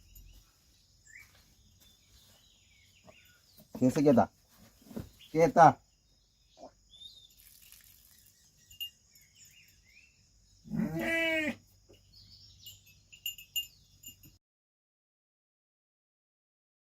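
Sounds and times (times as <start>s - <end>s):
faint bird chirps: 0.0s - 14.4s
sheep bleating: 10.7s - 11.6s.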